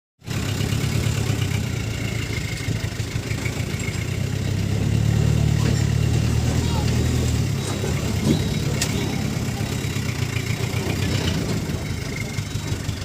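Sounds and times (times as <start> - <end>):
diesel truck engine rumbling: 0.2 - 13.0.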